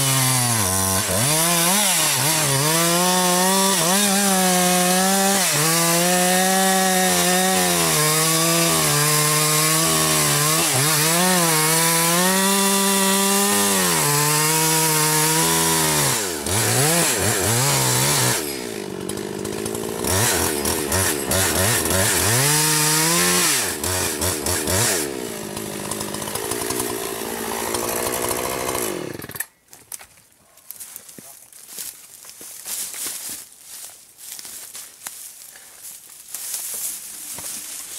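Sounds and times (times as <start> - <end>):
chainsaw cutting at full throttle: 0.0 - 29.5.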